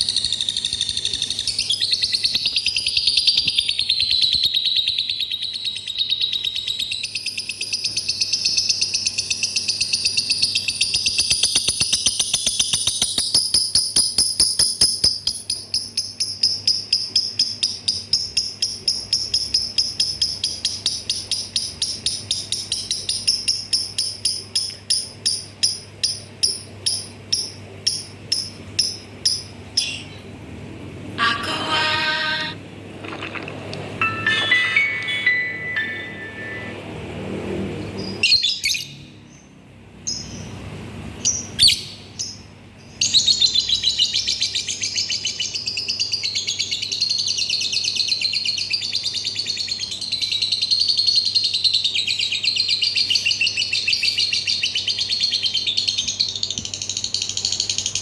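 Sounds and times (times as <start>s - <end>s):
lovebird trilling and chirping: 0.0s - 17.0s.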